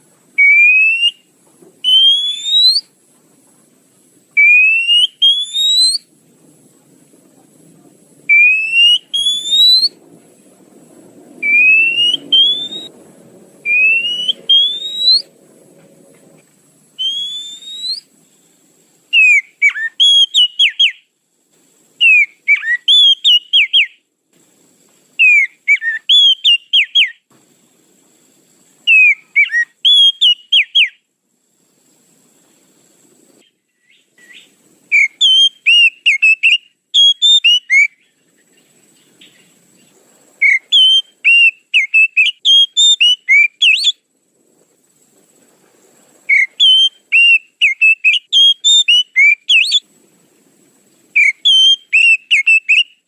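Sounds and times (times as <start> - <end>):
bird whistling call: 0.4 - 2.9, 4.4 - 6.1, 8.3 - 10.0, 11.4 - 13.0, 13.6 - 15.4, 17.0 - 18.1, 19.1 - 21.1, 22.0 - 24.0, 25.2 - 27.2, 28.9 - 31.0, 33.8 - 38.2, 40.4 - 44.0, 46.3 - 49.9, 51.2 - 53.0.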